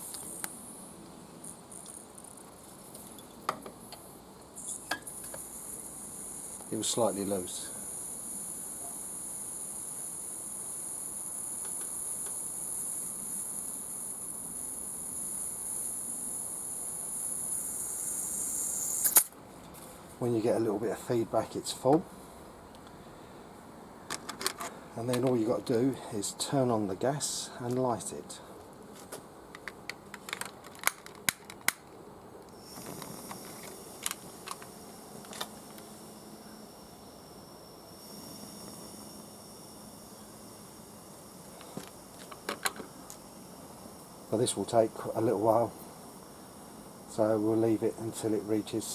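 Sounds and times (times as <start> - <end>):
high-pitched gas hiss: 0.0 - 23.7, 24.6 - 28.7, 32.5 - 48.9.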